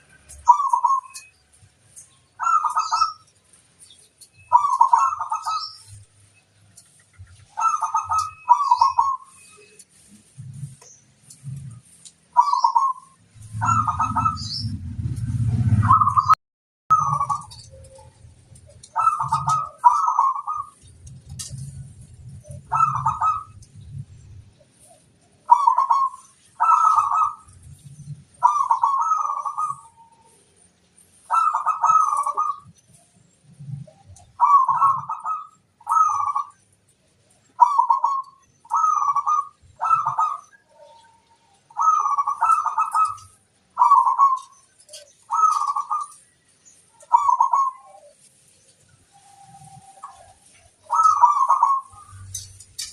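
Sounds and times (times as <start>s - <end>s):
dove cooing: 0.2s - 1.3s, 2.4s - 3.4s, 4.3s - 6.1s, 7.2s - 15.0s, 15.6s - 36.7s, 37.4s - 52.9s.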